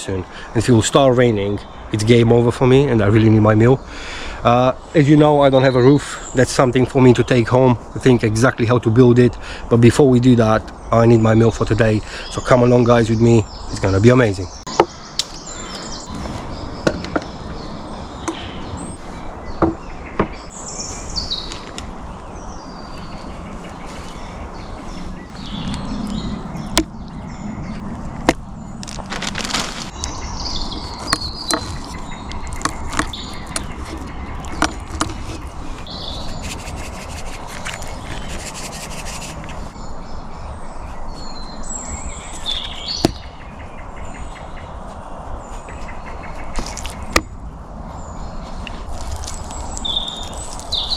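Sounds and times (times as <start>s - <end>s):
birds chirping: 0.0s - 50.9s
camp gear rubbing and scraping: 20.3s - 39.8s.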